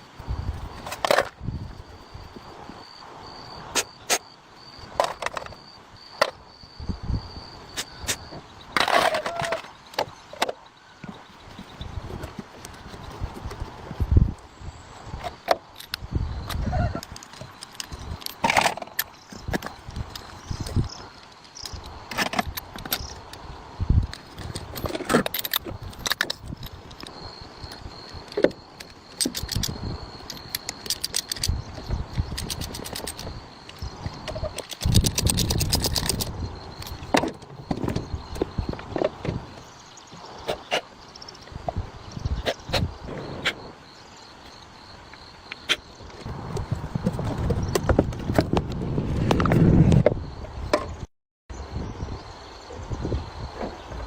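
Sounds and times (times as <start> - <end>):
metal tools clinking: 24.1 - 37.5.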